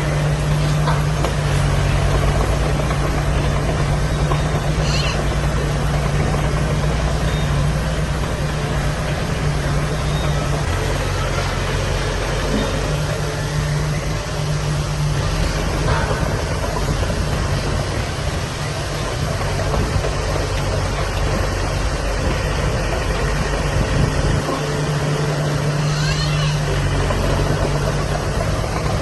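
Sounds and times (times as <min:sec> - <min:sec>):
heavy diesel engine running: 0:00.0 - 0:29.0.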